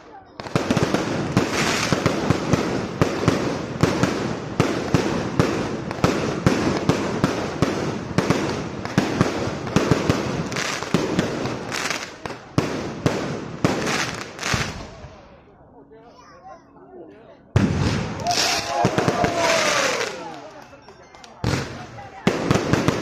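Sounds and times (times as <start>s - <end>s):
fireworks bangs: 0.0s - 15.2s, 17.6s - 20.6s, 21.4s - 23.0s
fireworks crackling hiss: 0.4s - 15.0s.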